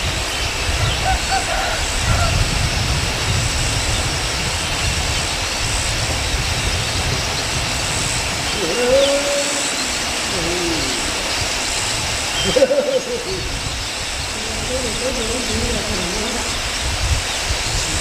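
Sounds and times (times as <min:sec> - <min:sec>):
steady loud hiss: 0:00.0 - 0:18.0
hooting bird calls: 0:03.8 - 0:18.0.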